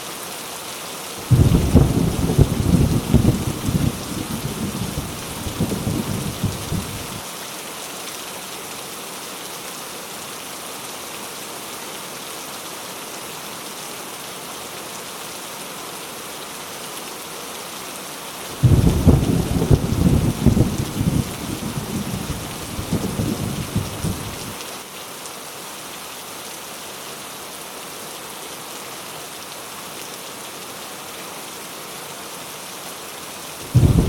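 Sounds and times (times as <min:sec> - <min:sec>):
heavy rain pouring: 0:00.2 - 0:34.0
thunder rumbling: 0:01.2 - 0:07.2, 0:18.6 - 0:24.5, 0:33.7 - 0:34.0.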